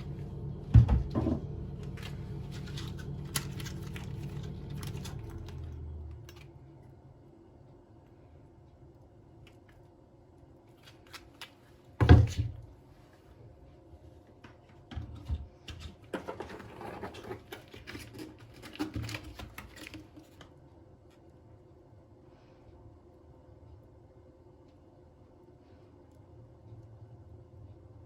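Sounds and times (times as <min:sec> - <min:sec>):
rustling and scraping: 0:01.0 - 0:06.4, 0:15.1 - 0:20.5.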